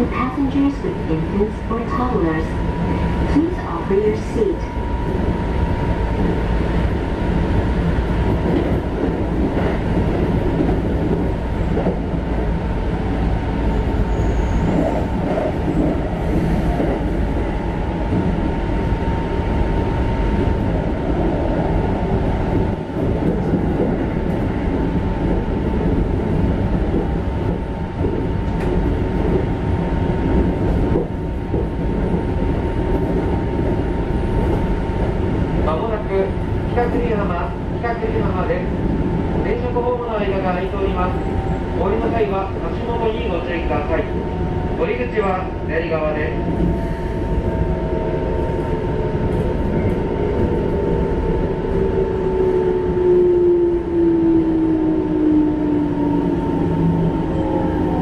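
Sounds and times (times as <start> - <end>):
train wheels rumbling on track: 0.0 - 58.0.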